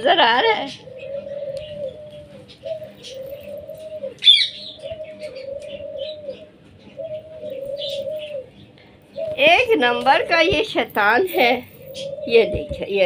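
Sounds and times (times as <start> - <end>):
bird cooing: 0.0 - 13.0
bird squawk: 0.6 - 10.5.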